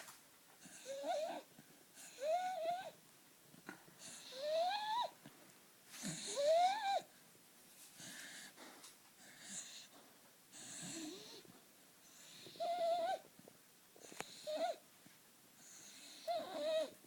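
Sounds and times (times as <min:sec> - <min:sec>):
dog snoring: 0:00.6 - 0:03.0, 0:04.0 - 0:05.1, 0:06.0 - 0:07.0, 0:09.2 - 0:13.2, 0:14.0 - 0:14.8, 0:15.6 - 0:17.0
dog whistling wheeze: 0:04.1 - 0:05.2, 0:06.2 - 0:07.1, 0:12.2 - 0:13.2, 0:14.3 - 0:14.8, 0:15.7 - 0:17.0.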